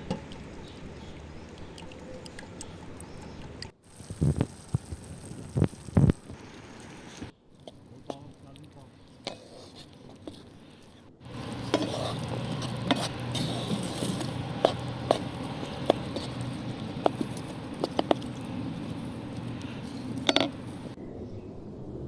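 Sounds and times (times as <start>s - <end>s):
food sizzling in a pan: 3.8s - 8.4s, 9.0s - 21.0s
utensil clicking against pan: 11.3s - 21.0s.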